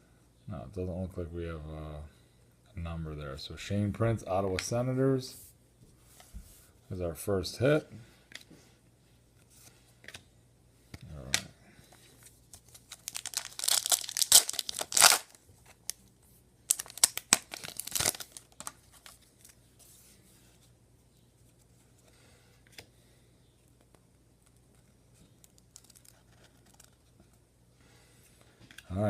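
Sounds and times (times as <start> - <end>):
wrapper tearing and crinkling: 12.6 - 16.0, 16.7 - 19.5.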